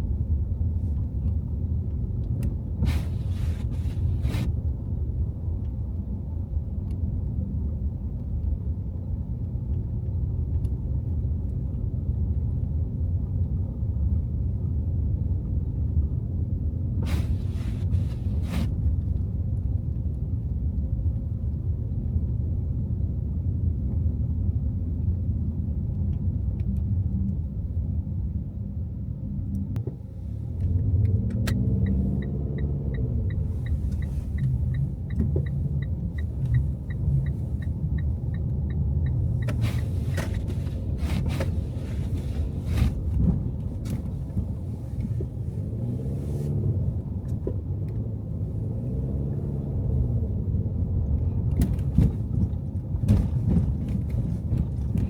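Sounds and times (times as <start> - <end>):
car road and engine rumble: 0.0 - 55.0
short hissing swish: 2.8 - 4.5.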